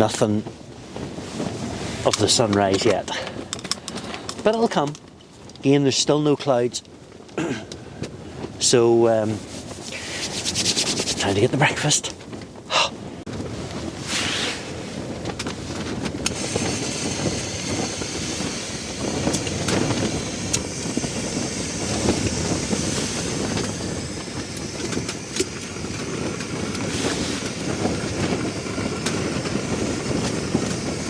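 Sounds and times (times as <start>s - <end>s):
steady rushing rumble: 0.0s - 6.0s, 7.8s - 31.0s
clicks and rustles: 0.9s - 5.7s, 9.4s - 12.6s.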